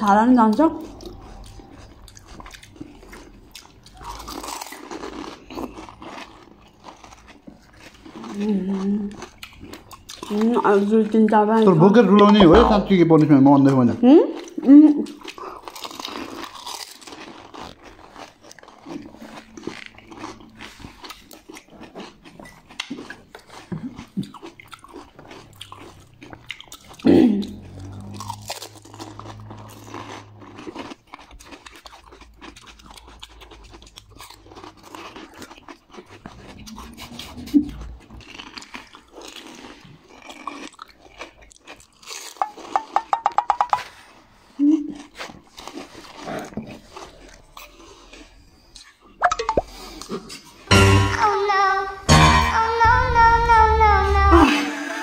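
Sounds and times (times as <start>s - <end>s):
crunching and chewing crisp shells: 0.2s - 50.7s
crisp shells crunching: 3.9s - 10.1s, 15.2s - 23.4s.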